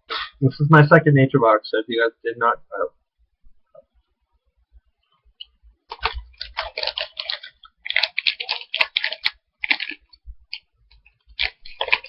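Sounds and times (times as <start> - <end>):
plastic snack package crinkling: 5.4 - 12.0.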